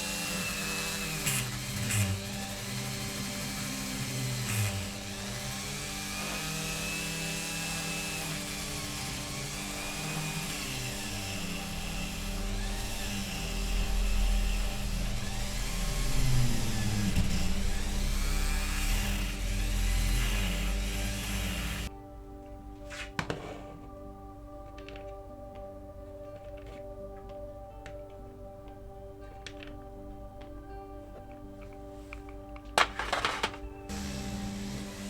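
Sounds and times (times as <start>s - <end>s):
rotary tool wire brush scrubbing metal: 0.0s - 21.9s.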